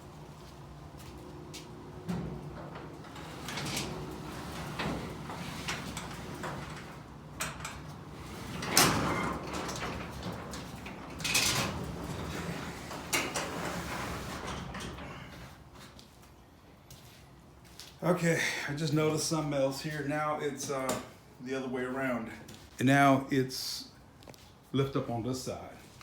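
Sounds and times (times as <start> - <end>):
garage door rollers rumbling: 0.0 - 15.9.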